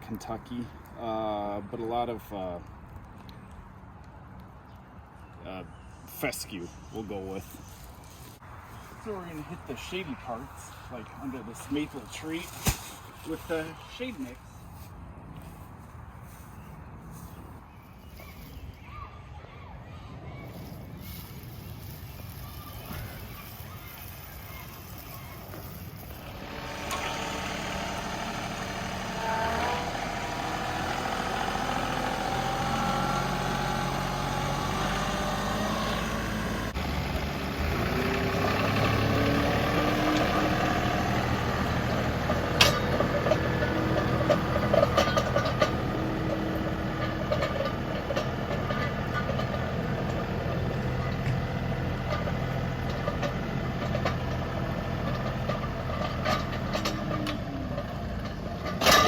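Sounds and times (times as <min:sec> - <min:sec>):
tractor diesel engine revving: 0:25.2 - 0:59.0.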